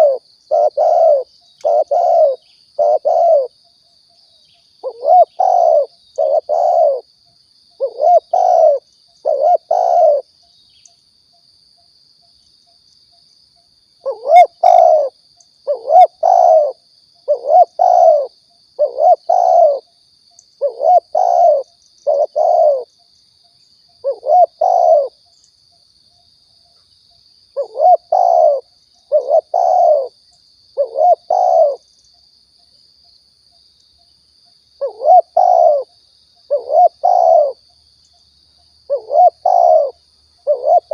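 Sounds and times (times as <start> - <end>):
dove cooing: 0.0 - 3.6, 4.8 - 7.1, 7.8 - 10.3, 14.0 - 19.9, 20.6 - 22.9, 24.0 - 25.2, 27.6 - 30.2, 30.8 - 31.8, 34.8 - 35.9, 36.5 - 37.6, 38.9 - 40.9.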